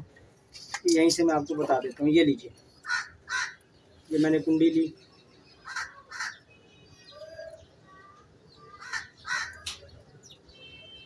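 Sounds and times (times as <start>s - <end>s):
harsh bird caws: 2.8s - 3.7s, 5.6s - 6.4s, 8.6s - 9.9s.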